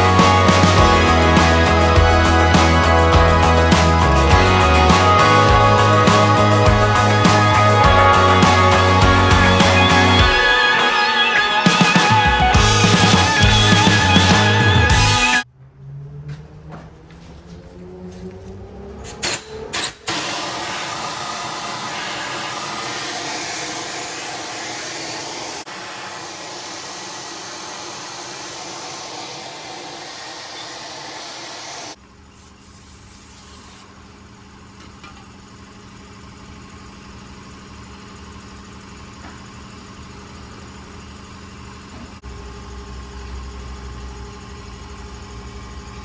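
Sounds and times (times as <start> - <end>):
air rushing hiss: 20.1 - 32.0.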